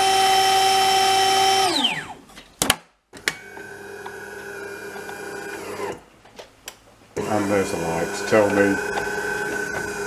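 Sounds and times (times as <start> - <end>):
grinder motor whirring: 7.2 - 10.0
machine humming: 7.2 - 10.0.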